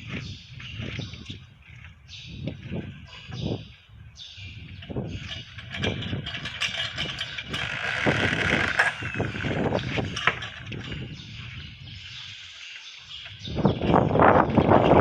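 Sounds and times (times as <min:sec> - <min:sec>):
wheel device clicking and knocking: 0:05.3 - 0:11.0.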